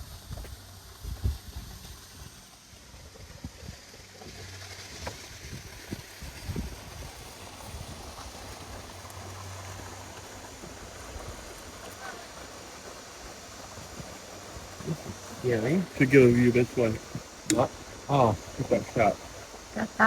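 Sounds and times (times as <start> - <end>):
river water rushing: 6.9 - 20.0.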